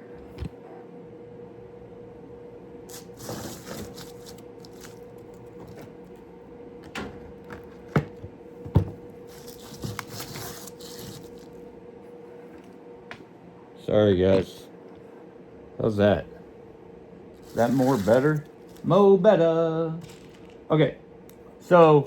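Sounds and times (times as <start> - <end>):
steady hum: 0.0 - 22.0
small hard objects knocking: 20.0 - 20.7.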